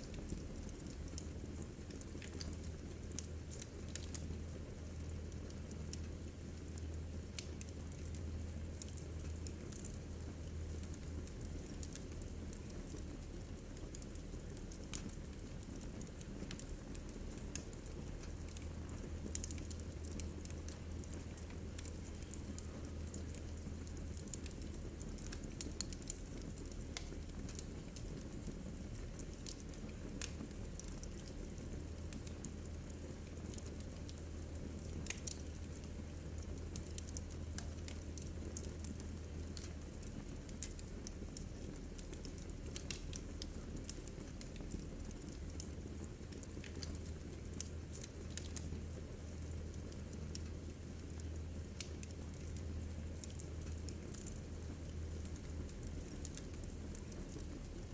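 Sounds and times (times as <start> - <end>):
wood fire crackling: 0.0 - 57.9.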